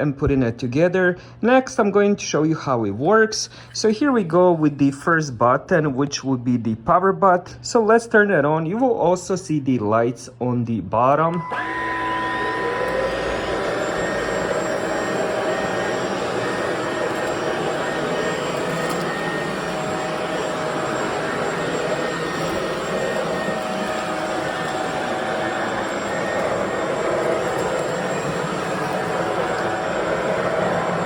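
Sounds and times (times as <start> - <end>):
stick vacuum motor whine: 11.3 - 31.0
suction air rush: 11.4 - 31.0.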